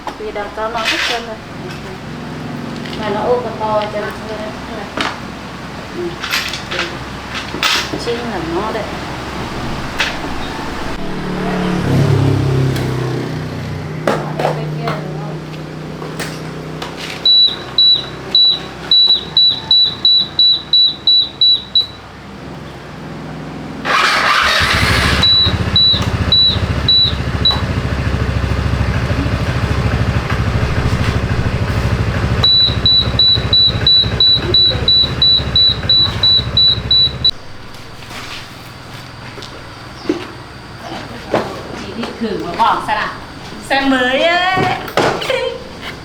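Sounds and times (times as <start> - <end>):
scooter engine running: 0.0 - 21.8, 23.6 - 45.0
electronic beeper chirping: 17.3 - 22.0, 24.8 - 27.8, 30.3 - 37.4
engine starter: 23.8 - 41.8.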